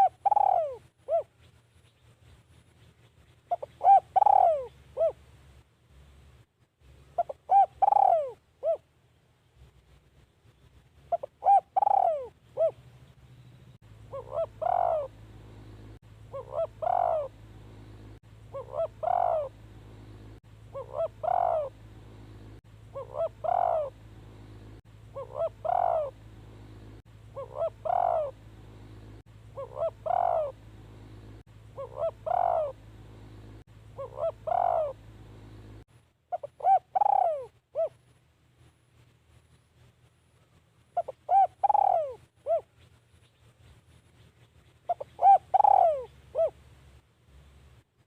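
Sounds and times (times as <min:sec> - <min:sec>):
dove cooing: 0:00.0 - 0:01.4, 0:03.5 - 0:05.3, 0:07.2 - 0:08.9, 0:11.1 - 0:12.9, 0:14.0 - 0:38.0, 0:41.0 - 0:42.8, 0:44.8 - 0:46.6
steady low hum: 0:00.0 - 0:48.0.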